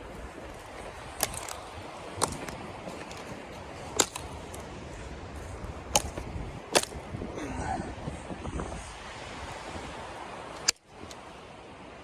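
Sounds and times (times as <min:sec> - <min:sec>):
wind: 0:00.0 - 0:12.0
sharp clicks: 0:01.2 - 0:03.2, 0:03.9 - 0:04.6.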